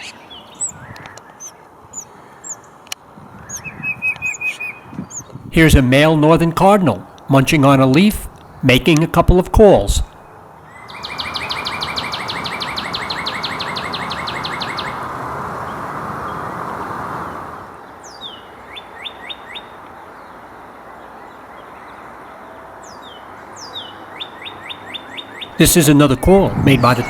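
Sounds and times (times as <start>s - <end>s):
cardinal trilling: 5.4s - 10.2s, 25.5s - 27.0s.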